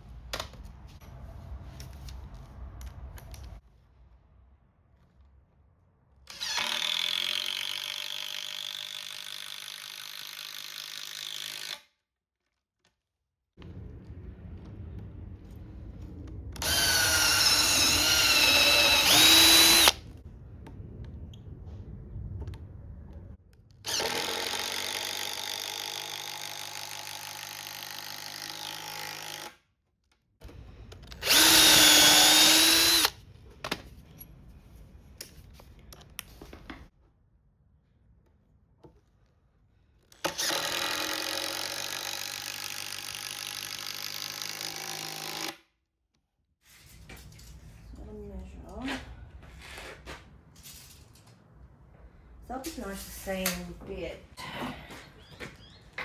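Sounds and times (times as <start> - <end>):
power drill driving screws: 6.3 - 11.9, 16.6 - 20.0, 23.8 - 29.6, 31.0 - 33.1, 40.1 - 45.6.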